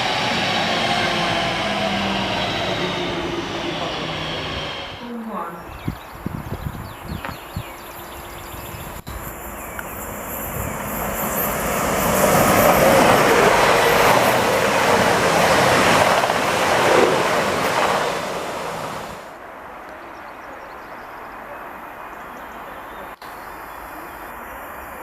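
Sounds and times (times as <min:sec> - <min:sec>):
train passing rumbling: 0:00.0 - 0:06.5, 0:07.8 - 0:19.8.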